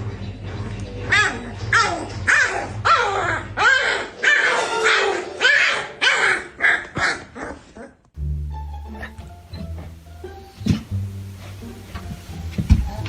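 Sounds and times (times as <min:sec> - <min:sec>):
music: 0:00.0 - 0:06.0, 0:08.2 - 0:13.0
dog barking and yipping: 0:01.1 - 0:07.9.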